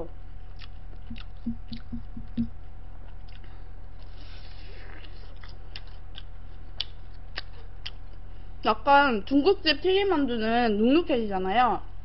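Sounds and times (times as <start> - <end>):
steady low hum: 0.0 - 12.0
chewing crispy food: 0.3 - 8.3.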